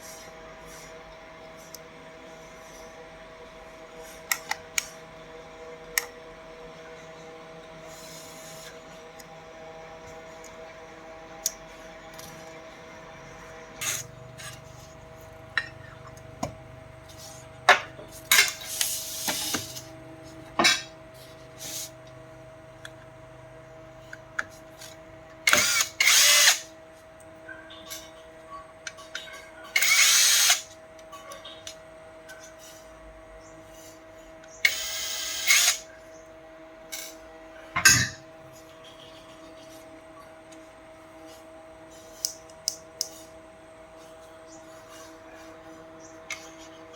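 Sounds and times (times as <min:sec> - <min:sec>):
steady hum: 0:00.0 - 0:46.9
power drill-driver running: 0:13.8 - 0:14.6, 0:25.5 - 0:26.7, 0:29.8 - 0:30.7, 0:34.6 - 0:35.8.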